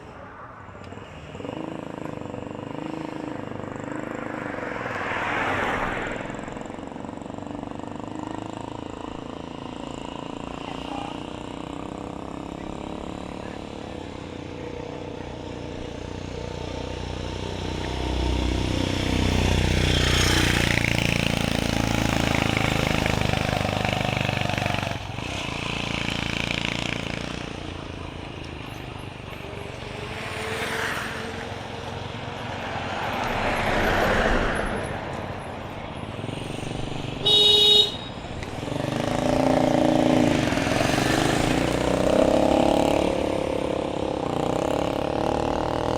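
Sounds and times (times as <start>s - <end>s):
vehicles passing: 0.0s - 45.9s
short horn toot: 37.2s - 38.2s.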